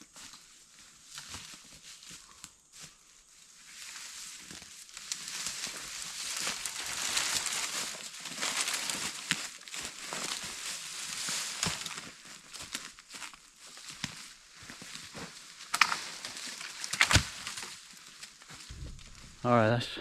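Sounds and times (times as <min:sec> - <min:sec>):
brush rustling and crackling: 0:00.1 - 0:19.5
sharp snaps of branches: 0:15.7 - 0:17.6.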